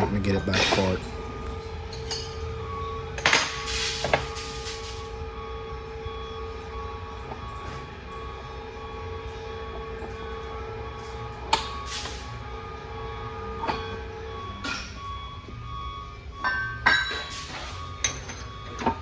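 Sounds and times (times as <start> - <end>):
workshop hum: 0.0 - 19.0
metallic clank: 0.5 - 1.3, 16.9 - 19.0.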